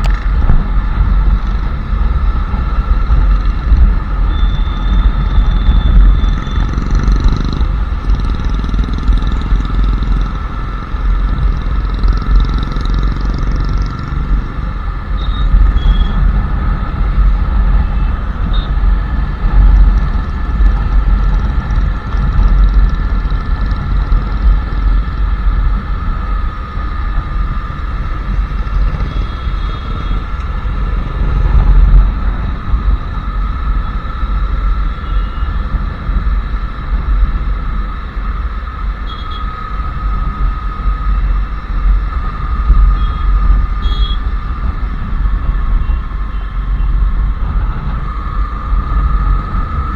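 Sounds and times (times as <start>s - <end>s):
motorcycle engine rumbling: 0.0s - 49.9s.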